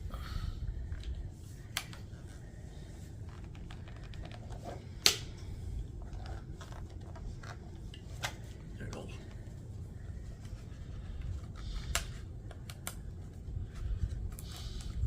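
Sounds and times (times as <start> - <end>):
sharp plastic snap: 5.0 - 5.3.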